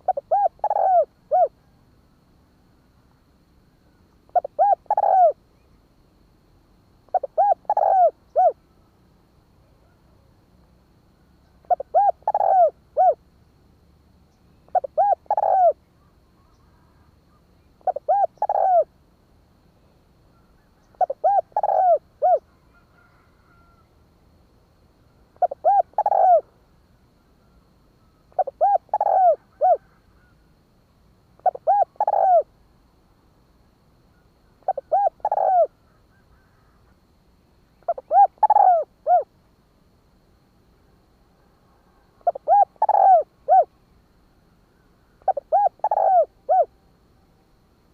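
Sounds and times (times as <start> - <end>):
dove cooing: 0.0 - 1.8, 4.3 - 5.4, 7.1 - 8.6, 11.6 - 13.2, 14.7 - 15.8, 17.8 - 18.9, 20.4 - 23.8, 25.4 - 26.5, 28.0 - 30.4, 31.4 - 32.5, 34.2 - 36.8, 37.8 - 39.3, 42.2 - 43.8, 45.2 - 46.8.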